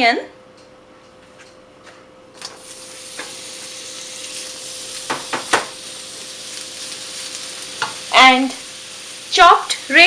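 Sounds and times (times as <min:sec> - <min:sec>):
onion sizzling in oil: 0:02.4 - 0:10.0
utensil knocking on pan: 0:05.1 - 0:05.7.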